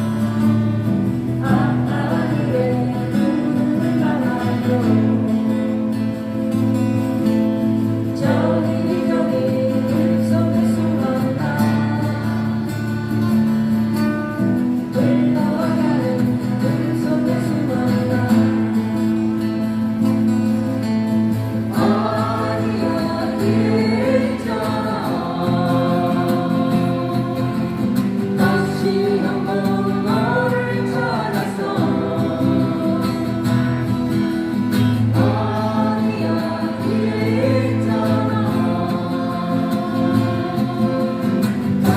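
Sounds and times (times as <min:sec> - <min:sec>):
person singing: 0:00.0 - 0:06.0, 0:08.0 - 0:13.5, 0:14.7 - 0:19.1, 0:21.7 - 0:41.9
strummed acoustic guitars: 0:00.0 - 0:41.9.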